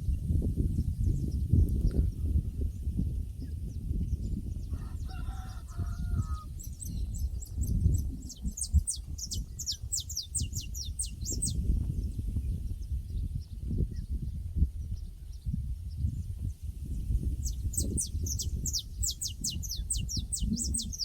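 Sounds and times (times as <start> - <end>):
wind on microphone: 0.0 - 21.0
fowl crowing: 4.7 - 6.5
songbird singing high notes: 17.4 - 21.0.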